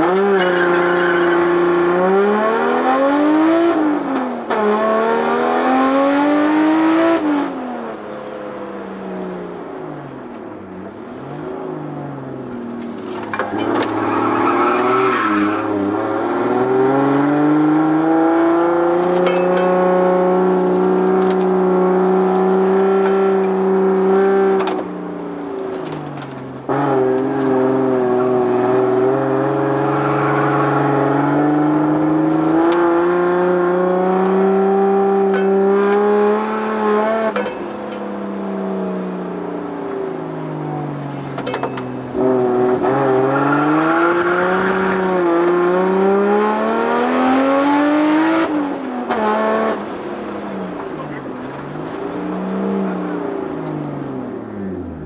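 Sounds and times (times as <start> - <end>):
car engine revving: 0.0 - 8.4, 9.0 - 41.4, 42.0 - 55.0.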